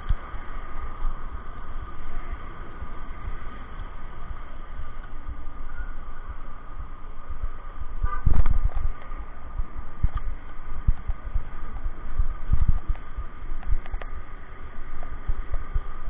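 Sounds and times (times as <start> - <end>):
road noise: 0.0 - 16.0
wind rumbling on microphone: 0.0 - 16.0
vehicle horn toot: 8.0 - 8.3.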